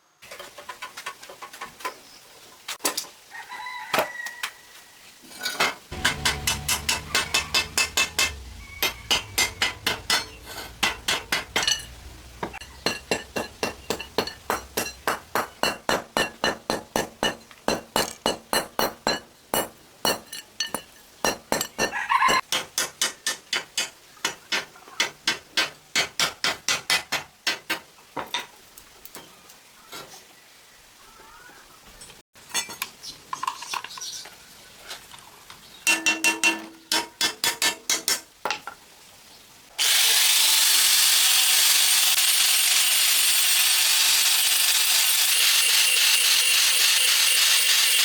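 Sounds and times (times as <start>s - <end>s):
sharp metallic taps: 5.9s - 27.3s.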